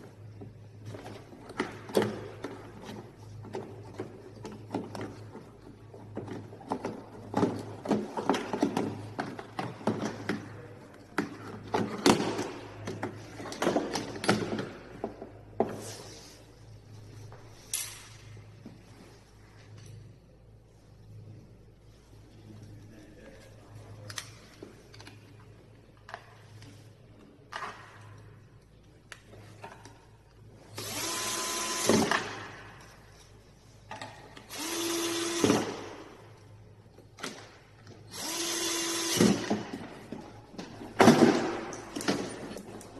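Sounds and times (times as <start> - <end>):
electric screwdriver whirring: 30.8 - 32.0, 34.5 - 35.7, 38.1 - 39.3.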